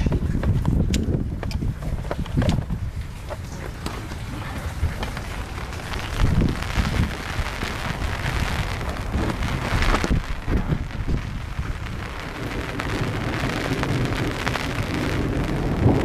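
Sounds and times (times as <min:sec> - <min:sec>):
low rumble of thunder: 0:01.1 - 0:16.0
rain falling: 0:01.6 - 0:16.0.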